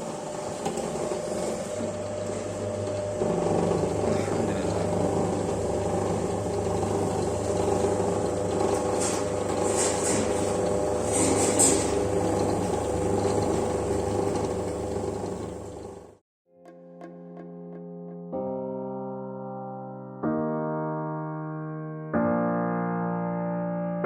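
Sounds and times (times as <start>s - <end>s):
electric motor humming: 0.0s - 16.2s.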